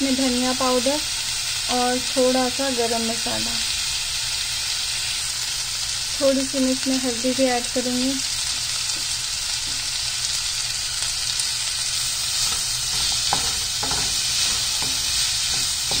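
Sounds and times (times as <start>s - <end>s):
zucchini sizzling in hot oil: 0.0s - 16.0s
wooden spatula scraping pan: 12.3s - 16.0s.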